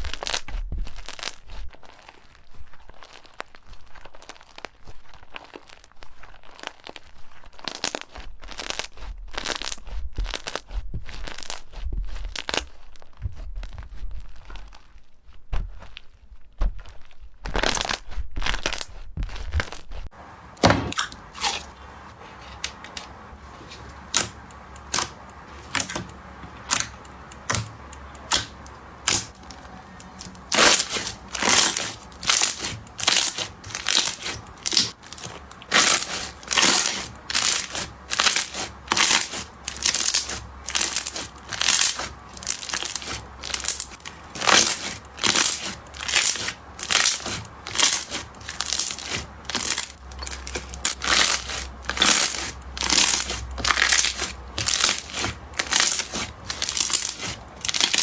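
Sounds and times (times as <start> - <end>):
slime crackling and popping: 23.8 - 58.0.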